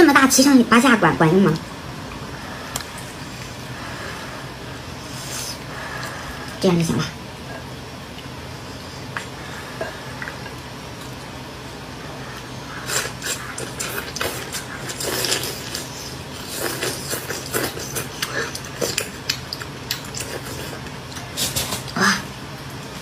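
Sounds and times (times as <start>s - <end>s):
low hum: 0.0s - 23.0s
person chewing wetly: 12.2s - 22.0s.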